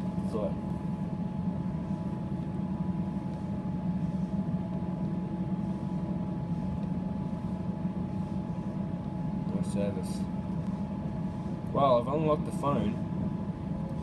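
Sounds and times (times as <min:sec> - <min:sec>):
faint high hum: 0:00.0 - 0:14.0.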